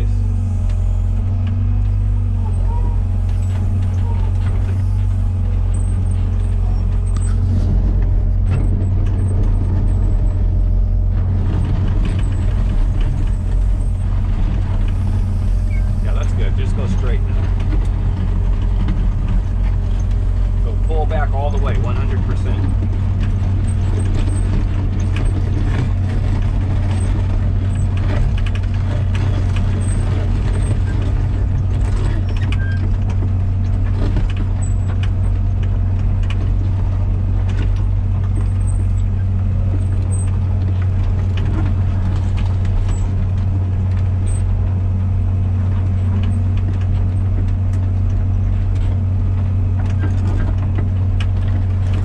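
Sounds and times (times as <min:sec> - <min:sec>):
excavator diesel engine humming: 0:00.0 - 0:52.0.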